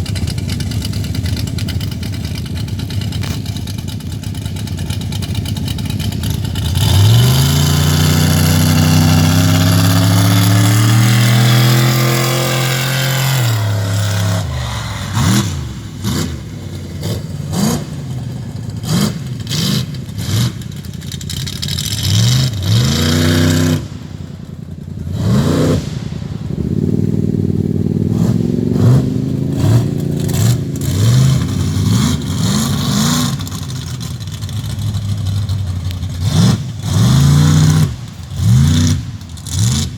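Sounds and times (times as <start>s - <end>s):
truck engine revving: 0.0s - 39.9s.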